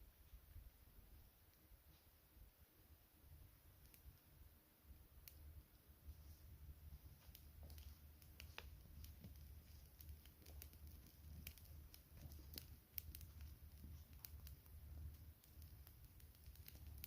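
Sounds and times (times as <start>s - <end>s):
wood fire crackling: 0.2s - 17.0s
low rumble of flames: 0.4s - 17.0s
fire pops and snaps: 3.7s - 4.2s, 5.2s - 5.7s, 6.4s - 17.0s.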